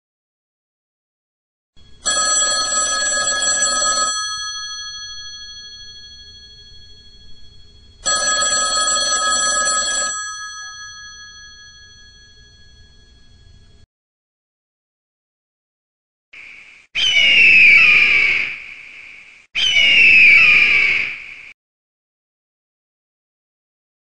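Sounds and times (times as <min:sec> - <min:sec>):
telephone bell ringing: 0:02.0 - 0:13.7.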